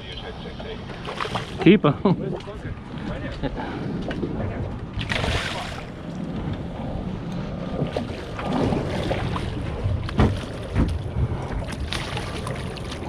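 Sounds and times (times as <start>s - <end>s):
water around hull: 0.0s - 13.0s
wind noise on microphone: 1.0s - 13.0s
knocks on boat: 10.0s - 11.0s.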